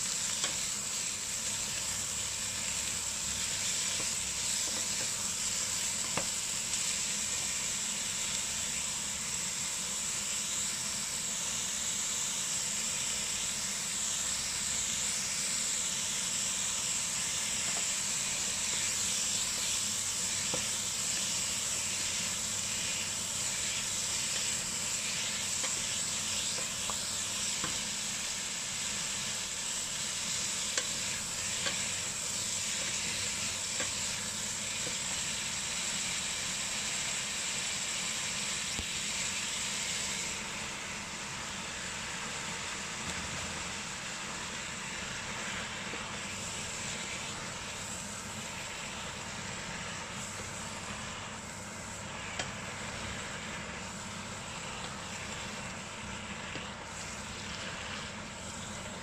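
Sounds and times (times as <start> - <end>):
vegetables sizzling in a pot: 0.0 - 59.0.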